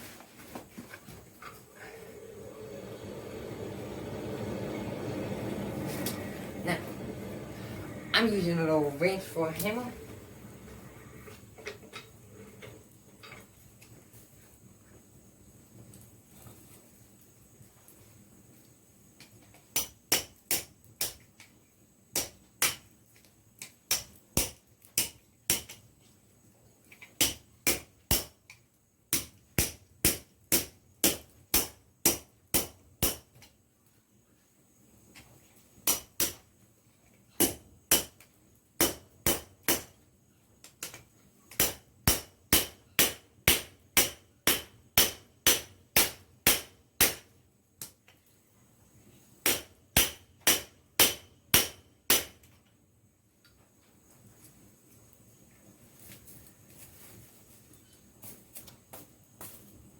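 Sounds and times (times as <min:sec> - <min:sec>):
wrench hammering hot metal on anvil: 0:19.8 - 0:21.2, 0:22.2 - 0:22.9, 0:23.9 - 0:25.8, 0:27.2 - 0:28.4, 0:29.1 - 0:33.4, 0:35.8 - 0:36.4, 0:37.4 - 0:38.2, 0:38.8 - 0:40.0, 0:40.8 - 0:47.3, 0:49.4 - 0:52.6.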